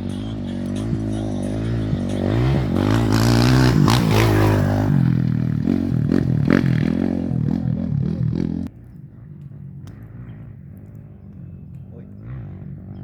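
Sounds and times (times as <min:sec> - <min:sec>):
race vehicle engine revving: 0:00.0 - 0:08.8.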